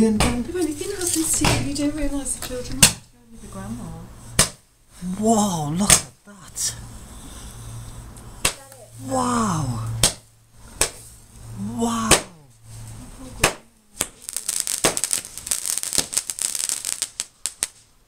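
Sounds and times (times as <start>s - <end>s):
fireworks crackling: 8.3s - 18.0s
firework bangs: 10.0s - 11.2s, 12.0s - 12.4s, 13.2s - 17.9s.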